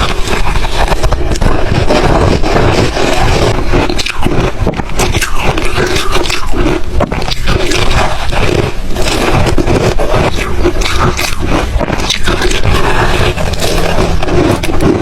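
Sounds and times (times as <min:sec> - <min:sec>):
ice being chewed and crunched: 0:00.0 - 0:15.0.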